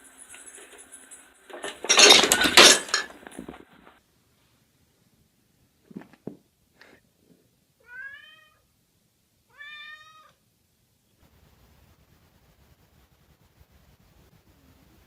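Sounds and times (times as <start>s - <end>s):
cat meowing: 7.8s - 8.7s, 9.5s - 10.4s.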